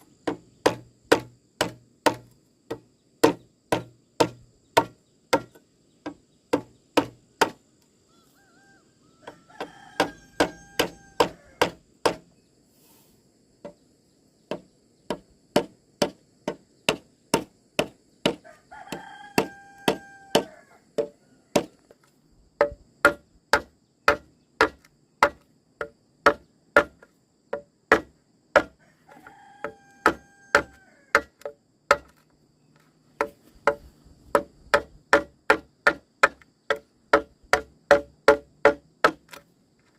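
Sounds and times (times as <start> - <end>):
rooster crowing: 8.0 - 11.8, 18.4 - 22.0, 28.6 - 31.4.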